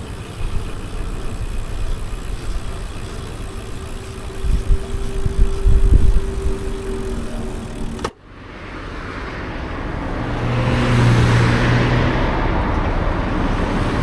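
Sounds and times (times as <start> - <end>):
engine hum: 0.0 - 14.0
street traffic: 0.0 - 14.0
wind rumble on microphone: 0.3 - 8.1.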